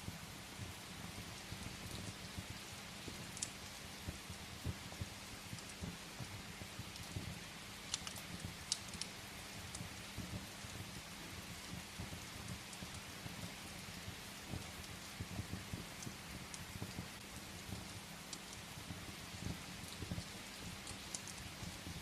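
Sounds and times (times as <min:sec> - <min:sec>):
rain pattering on a window: 0:00.0 - 0:22.0
wood fire crackling and popping: 0:00.0 - 0:22.0.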